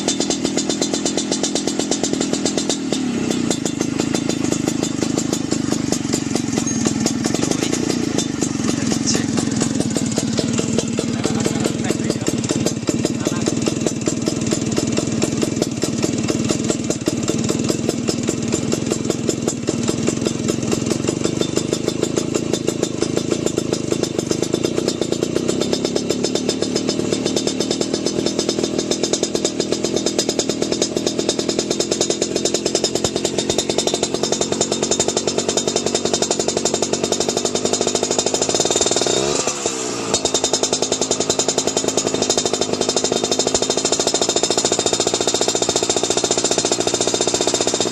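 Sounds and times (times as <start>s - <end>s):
scooter engine running: 0.0s - 47.9s.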